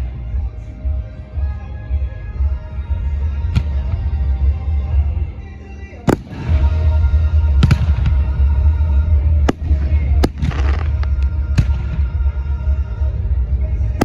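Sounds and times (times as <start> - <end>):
music playing: 0.0 - 14.0
fireworks bangs: 6.1 - 8.5, 9.4 - 12.2
fireworks crackling: 6.1 - 8.5, 9.3 - 12.2.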